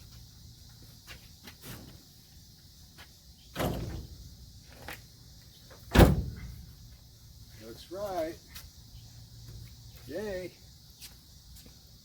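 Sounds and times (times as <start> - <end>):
heavy thud: 5.9 - 6.6.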